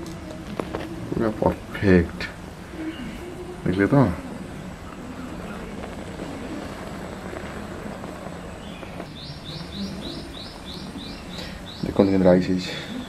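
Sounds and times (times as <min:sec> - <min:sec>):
low steady hiss: 0:00.0 - 0:13.0
bird chirping: 0:05.3 - 0:13.0.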